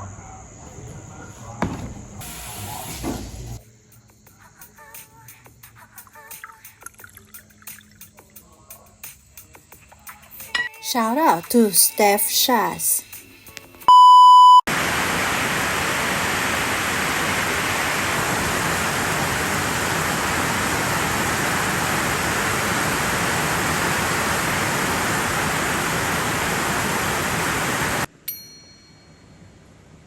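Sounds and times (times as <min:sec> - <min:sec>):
heavy rain hissing: 0:00.6 - 0:03.6, 0:14.7 - 0:28.1
faint hiss: 0:01.2 - 0:03.6.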